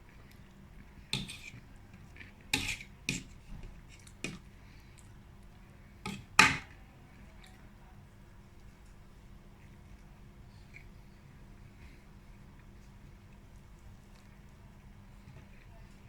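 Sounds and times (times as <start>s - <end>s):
cutlery clinking on dish: 1.2s - 1.5s, 2.6s - 3.3s, 6.1s - 6.7s.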